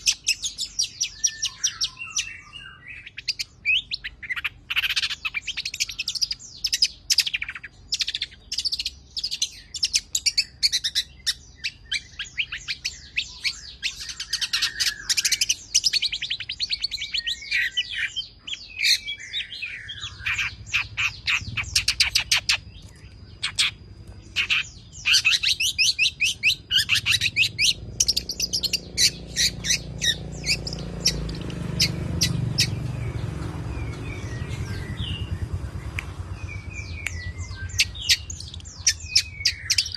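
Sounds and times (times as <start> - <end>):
bird singing chirps and rattles: 0.0 - 39.9
low rumble: 27.0 - 39.6.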